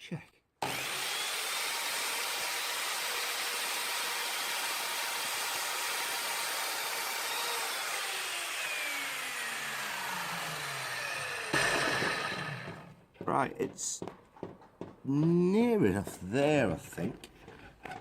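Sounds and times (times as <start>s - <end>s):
mitre saw motor whining: 0.6s - 12.9s.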